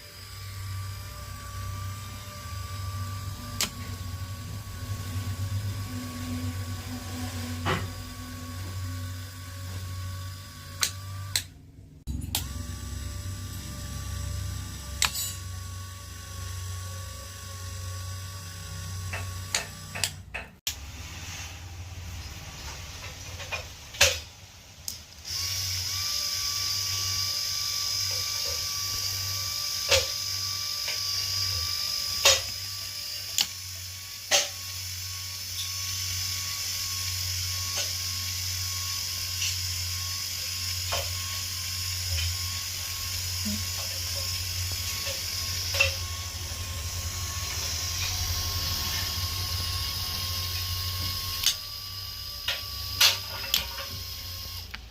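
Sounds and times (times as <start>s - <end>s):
small motor humming and whining: 0.0s - 54.9s.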